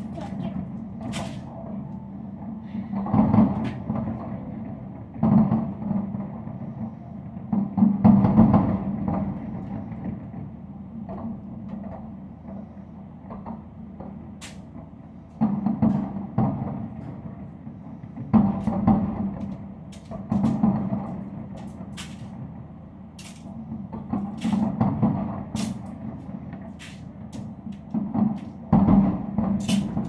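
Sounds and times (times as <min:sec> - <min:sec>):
fireworks booming: 0:02.9 - 0:06.6, 0:15.4 - 0:22.5, 0:23.6 - 0:30.0.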